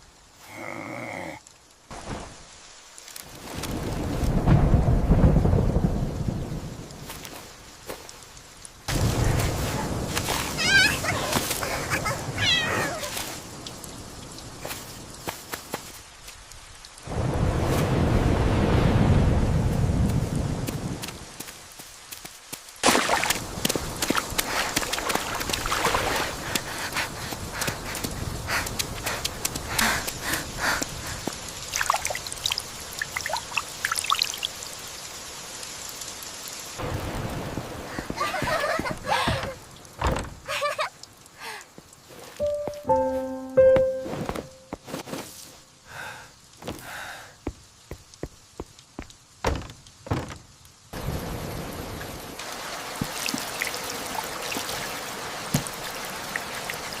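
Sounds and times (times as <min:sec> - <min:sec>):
steady rain falling: 0:00.0 - 0:57.0
dull thumps: 0:38.9 - 0:40.5, 0:49.4 - 0:50.5
plinking water drops: 0:42.4 - 0:44.5.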